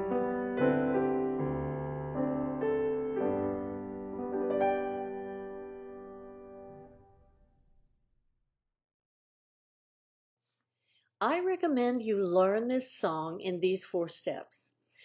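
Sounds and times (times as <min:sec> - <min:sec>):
piano chord ringing: 0:00.0 - 0:07.3.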